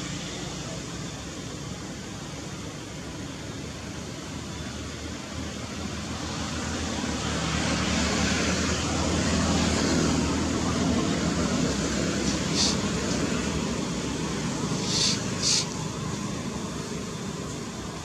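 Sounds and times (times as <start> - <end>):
motor running with rushing noise: 7.9 - 18.0.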